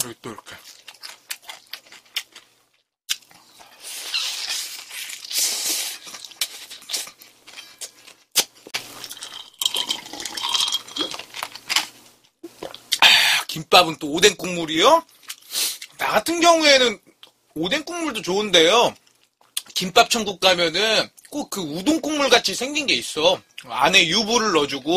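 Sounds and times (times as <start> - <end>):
close chewing: 0.2 - 11.7.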